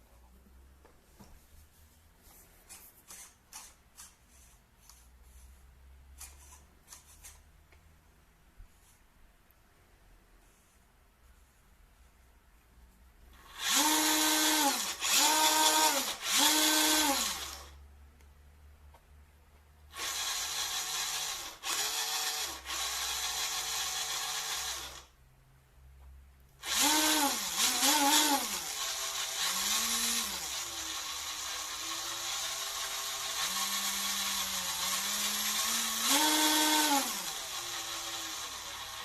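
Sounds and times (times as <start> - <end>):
electric motor whining: 13.6 - 17.7, 20.0 - 25.0, 26.6 - 39.0.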